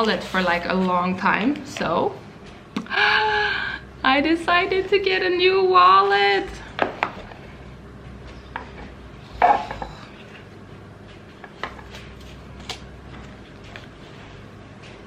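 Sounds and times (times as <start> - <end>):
objects clattering: 8.3 - 10.5.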